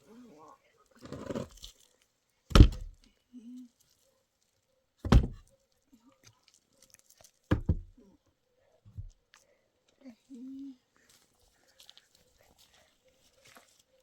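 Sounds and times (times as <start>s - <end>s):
faint voice-like sounds: 0.0s - 4.8s, 7.9s - 14.0s
heavy thumps: 2.5s - 3.0s, 5.0s - 5.4s, 7.5s - 8.0s.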